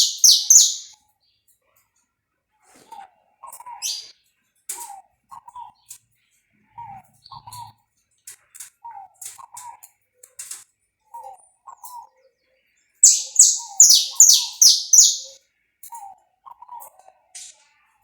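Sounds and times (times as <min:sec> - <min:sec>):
finch singing chirps and high notes: 0:00.0 - 0:00.9, 0:03.8 - 0:04.1, 0:13.0 - 0:15.4.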